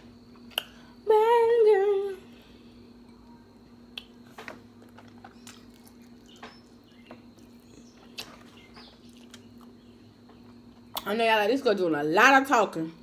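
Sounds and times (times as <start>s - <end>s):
steady low hum: 0.0s - 13.0s
person chewing: 4.8s - 9.8s.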